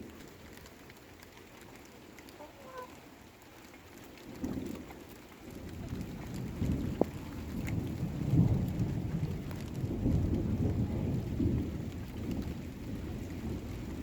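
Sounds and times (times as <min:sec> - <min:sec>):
rain falling: 0:00.0 - 0:14.0
thunder rumbling: 0:04.2 - 0:14.0.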